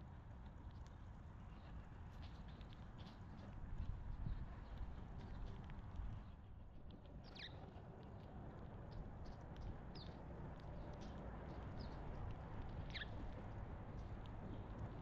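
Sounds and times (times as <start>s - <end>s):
low steady background noise: 0.0s - 15.0s
small birds chirping: 7.2s - 7.6s, 12.8s - 13.2s.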